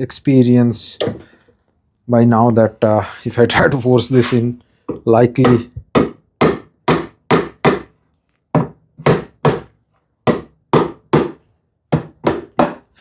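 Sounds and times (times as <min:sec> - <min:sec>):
mallet striking wood: 0:05.4 - 0:07.9, 0:08.6 - 0:09.7, 0:10.3 - 0:11.4, 0:12.0 - 0:12.8.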